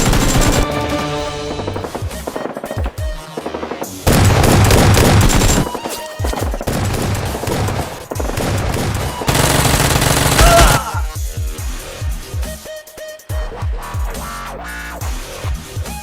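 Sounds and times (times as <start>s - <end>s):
automatic gunfire bursts: 0.0s - 0.7s, 4.0s - 5.8s, 6.6s - 10.7s
background music with low beat: 0.0s - 10.1s, 10.9s - 16.0s.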